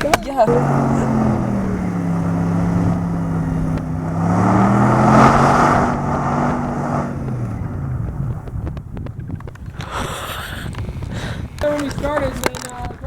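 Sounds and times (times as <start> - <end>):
car engine revving: 0.0 - 12.7
rushing noise: 0.5 - 8.9.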